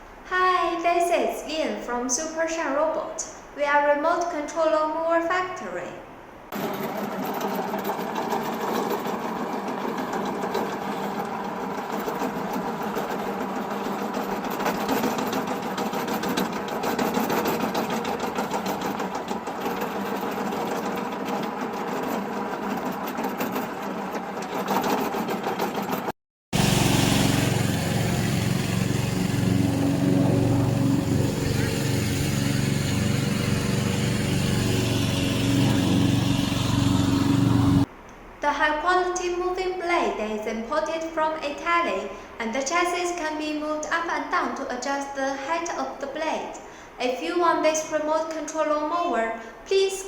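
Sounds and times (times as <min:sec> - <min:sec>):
lawn mower engine humming: 0:06.4 - 0:37.9.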